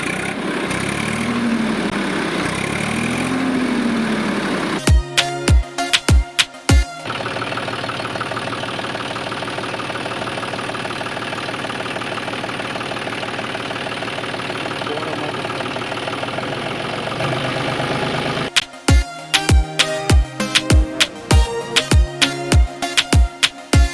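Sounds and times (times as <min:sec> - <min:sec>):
small motor rattling: 0:00.0 - 0:04.8, 0:07.0 - 0:18.6.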